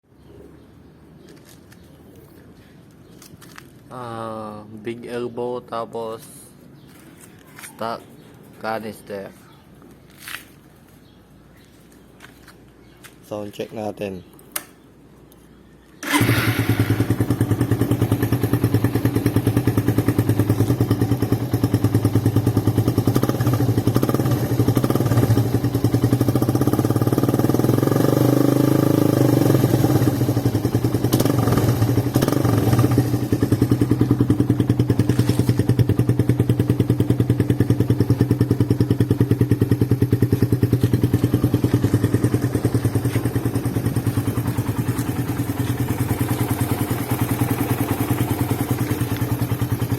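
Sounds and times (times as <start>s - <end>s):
motorcycle engine idling: 16.0s - 49.9s.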